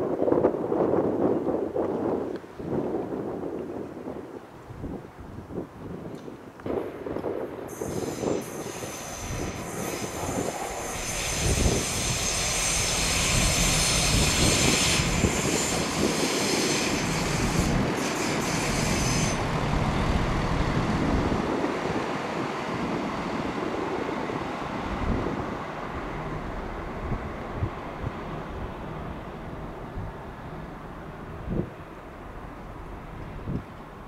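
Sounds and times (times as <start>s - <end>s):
diesel train running past: 7.6s - 34.0s
high-pitched wheel squeal: 7.7s - 19.5s.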